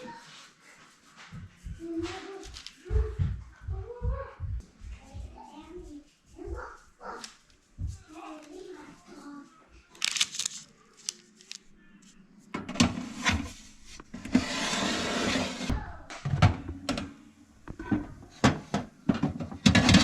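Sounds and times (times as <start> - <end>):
kitchen knocks and clatter: 16.2 - 20.0.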